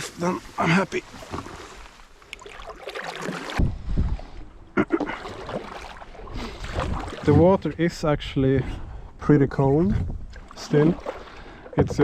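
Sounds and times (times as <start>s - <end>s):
paddle strokes splashing: 0.0s - 4.4s, 5.0s - 7.6s, 10.3s - 12.0s.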